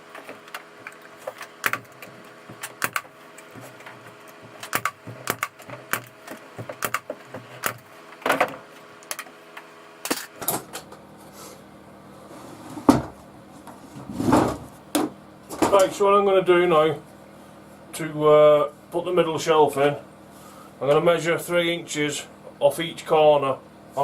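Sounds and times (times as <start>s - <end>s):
tools clicking and knocking on workbench: 0.1s - 11.0s.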